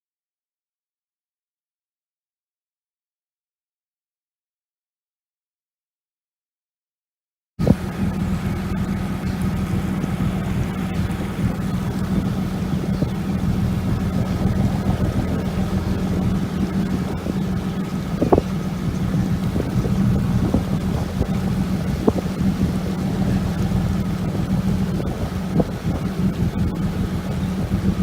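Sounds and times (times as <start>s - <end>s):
boat engine humming: 7.6s - 28.0s
wind buffeting microphone: 7.6s - 28.0s.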